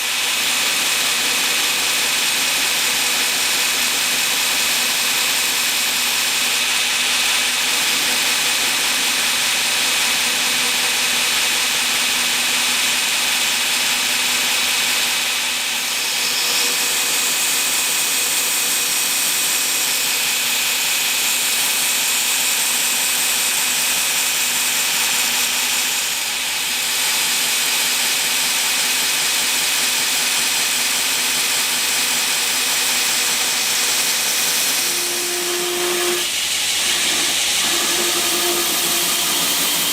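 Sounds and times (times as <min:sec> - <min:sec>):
grinder grinding: 0:31.9 - 0:39.9.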